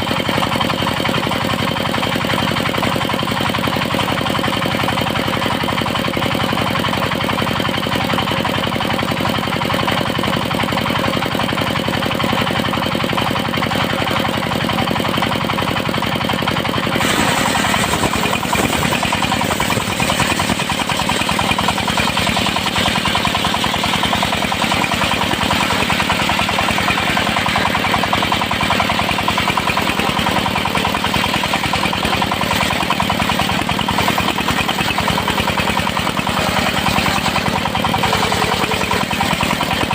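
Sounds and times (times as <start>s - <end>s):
circular saw cutting wood: 17.0s - 39.9s.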